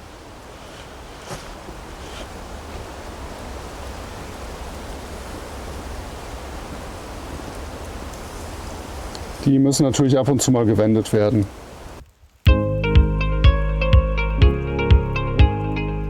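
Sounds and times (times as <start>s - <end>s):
faint clicks: 9.1s - 9.5s.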